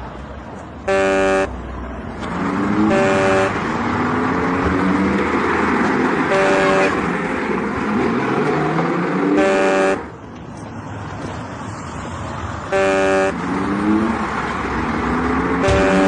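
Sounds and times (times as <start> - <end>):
traffic engine noise: 0.0 - 16.0
vehicle horn blasts: 0.9 - 1.5, 2.8 - 3.6, 6.3 - 7.0, 9.4 - 10.1, 12.7 - 13.4, 15.6 - 16.0
motor pitch climbing: 2.9 - 3.6.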